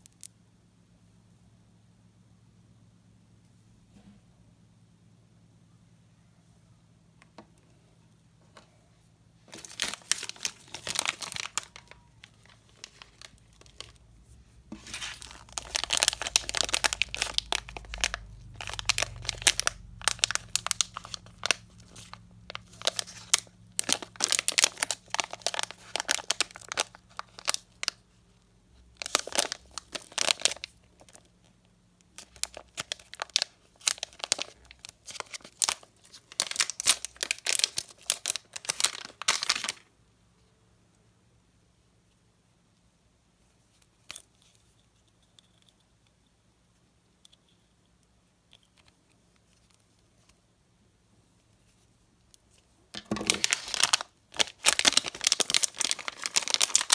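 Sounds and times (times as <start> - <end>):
candy packaging crinkling: 9.4 - 39.9, 52.4 - 56.9.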